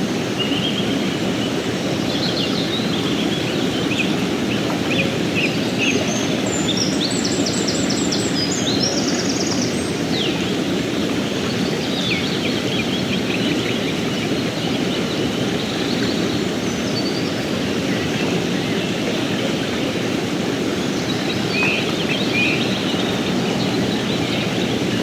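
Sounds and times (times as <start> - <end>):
small birds singing: 0.2 - 25.0
river rushing over rocks: 9.6 - 25.0.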